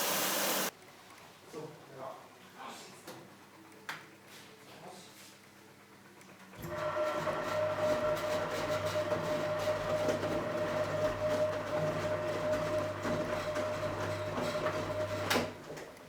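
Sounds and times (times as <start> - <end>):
washing machine running: 0.0 - 0.7, 6.5 - 16.0.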